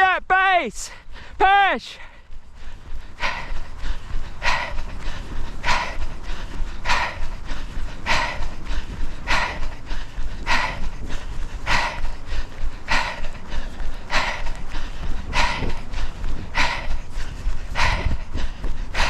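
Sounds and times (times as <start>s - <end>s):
runner breathing hard: 0.7s - 19.0s
steady low rumble: 0.9s - 19.0s.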